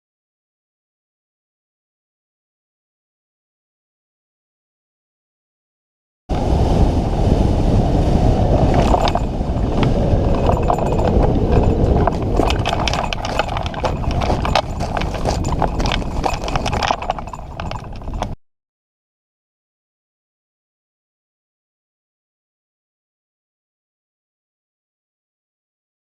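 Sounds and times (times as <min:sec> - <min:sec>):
wind buffeting microphone: 0:06.3 - 0:18.4
irregular clicks and knocks: 0:08.7 - 0:18.4.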